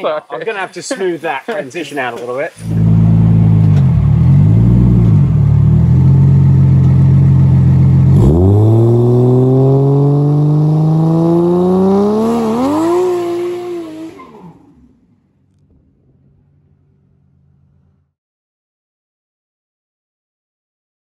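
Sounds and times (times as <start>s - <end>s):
car engine revving: 2.6s - 18.0s
tyres spinning in a burnout: 8.2s - 15.0s.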